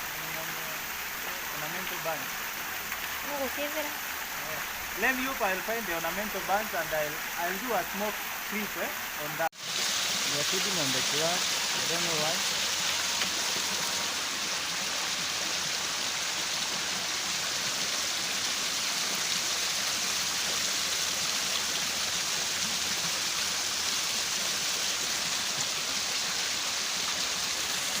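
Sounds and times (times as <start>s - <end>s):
waterfall splashing: 0.0s - 28.0s.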